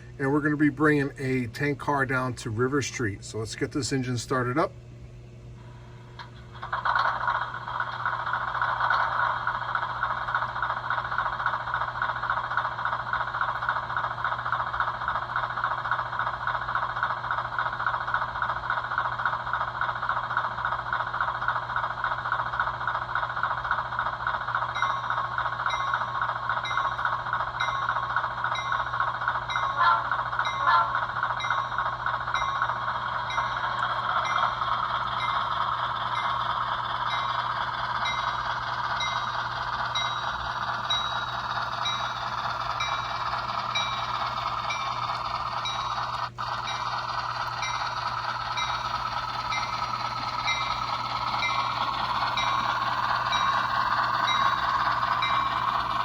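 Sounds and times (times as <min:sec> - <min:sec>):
model diesel engine sound: 0:00.0 - 0:04.7, 0:05.6 - 0:56.0
bell ringing: 0:29.5 - 0:36.4, 0:37.0 - 0:56.0.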